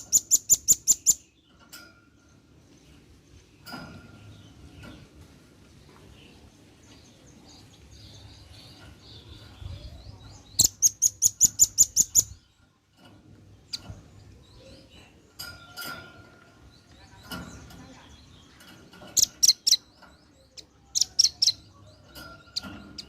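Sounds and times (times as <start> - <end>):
nuthatch twittering: 0.0 - 1.4, 7.5 - 12.5, 17.1 - 23.0
sharp high bird chips: 19.1 - 19.9.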